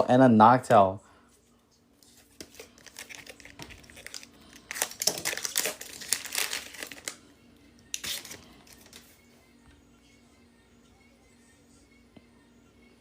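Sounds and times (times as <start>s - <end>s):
foil wrapper crinkling: 2.1s - 7.2s, 7.9s - 9.1s.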